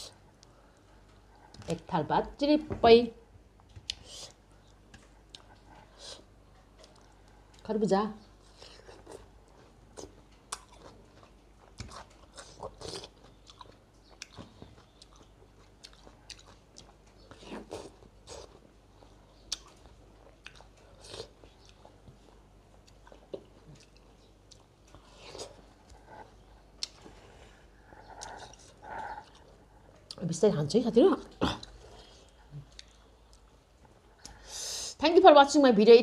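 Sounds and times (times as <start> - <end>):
person chewing watermelon: 3.8 - 7.6, 8.4 - 30.2, 31.4 - 34.5.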